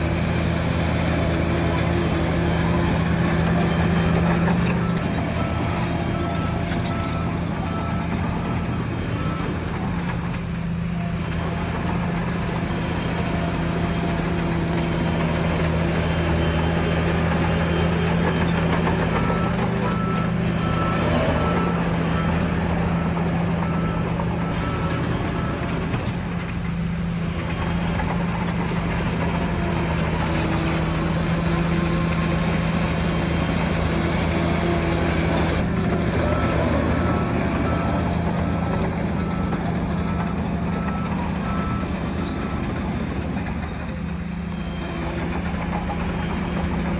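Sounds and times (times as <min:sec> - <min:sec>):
heavy diesel machine running: 0:00.0 - 0:46.9
reversing alarm beeping: 0:02.1 - 0:10.2, 0:35.6 - 0:42.9.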